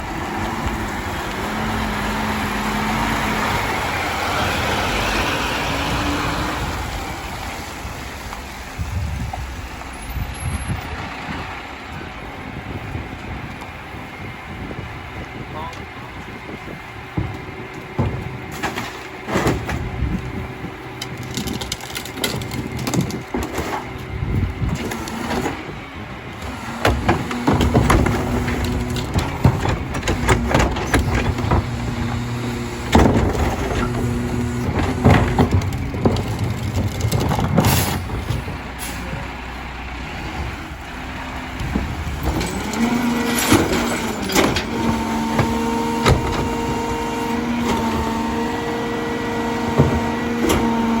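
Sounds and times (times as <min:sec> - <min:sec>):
garbage truck hydraulic hum: 0:00.0 - 0:51.0
carts banging into hopper: 0:16.2 - 0:25.8, 0:26.4 - 0:51.0.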